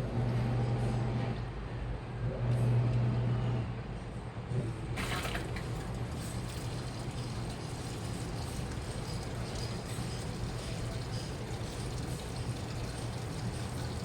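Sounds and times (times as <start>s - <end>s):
washing machine motor hum: 4.8s - 14.0s
water rushing: 5.0s - 14.0s.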